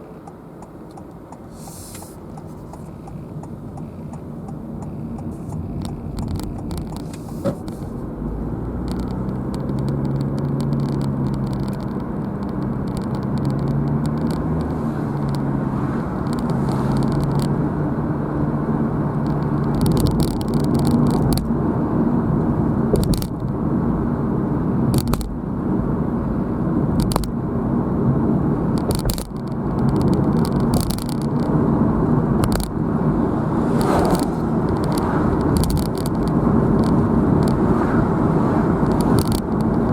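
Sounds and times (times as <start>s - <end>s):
car engine hum: 0.0s - 39.9s
small rattles and clicks: 0.2s - 8.1s, 8.7s - 15.5s, 16.2s - 17.6s, 19.1s - 21.5s, 22.9s - 23.5s, 24.9s - 25.4s, 26.9s - 27.4s, 28.7s - 31.6s, 32.3s - 32.8s, 33.7s - 37.6s, 38.8s - 39.9s
tyre noise: 32.2s - 39.9s.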